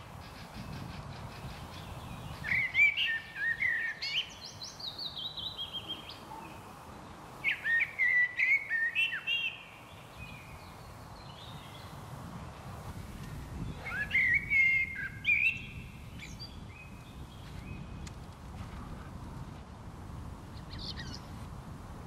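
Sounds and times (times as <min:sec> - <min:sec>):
songbird chirping: 0:00.0 - 0:12.2, 0:13.3 - 0:18.2
outdoor background hiss: 0:00.0 - 0:22.0.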